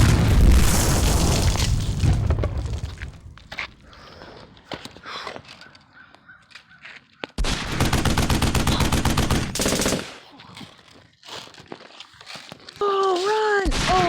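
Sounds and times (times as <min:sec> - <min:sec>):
automatic gunfire burst: 0:07.4 - 0:10.2.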